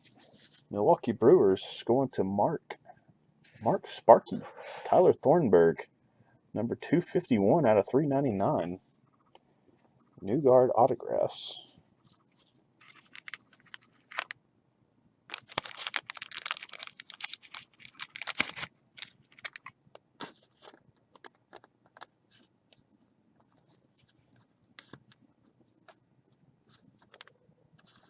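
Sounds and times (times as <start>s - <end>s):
packaging crinkling and rustling: 12.3s - 14.4s, 15.3s - 22.1s.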